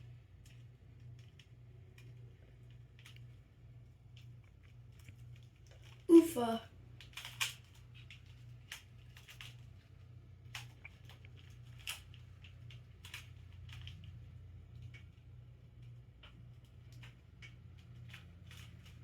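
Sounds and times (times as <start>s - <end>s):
plastic puzzle pieces clicking: 7.0s - 9.6s.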